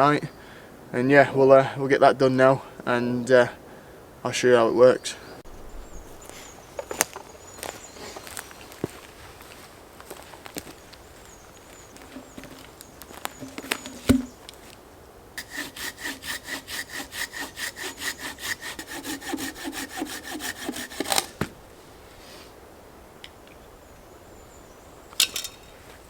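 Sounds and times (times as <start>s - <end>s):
hand saw cutting log: 13.3s - 14.3s, 15.4s - 21.6s
wood knock: 13.4s - 14.4s
wood cracking: 15.4s - 21.6s.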